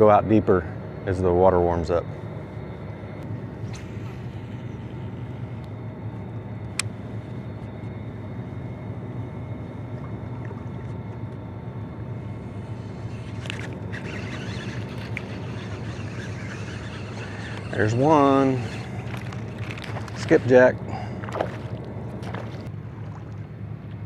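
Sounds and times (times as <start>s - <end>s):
boat motor droning: 0.0s - 24.0s.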